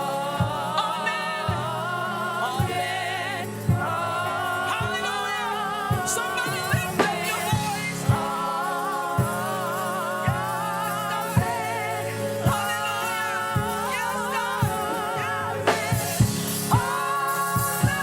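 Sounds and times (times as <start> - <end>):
gospel singing over a band: 0.0 - 18.0.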